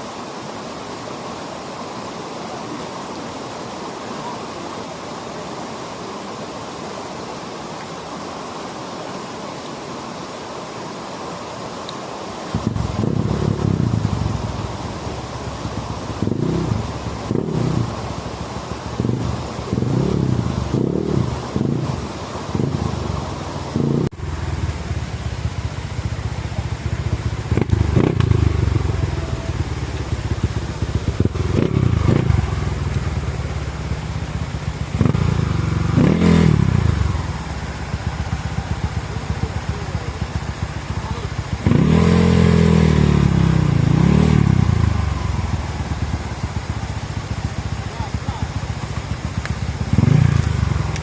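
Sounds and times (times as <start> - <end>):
dirt bike engine revving: 12.5 - 51.0.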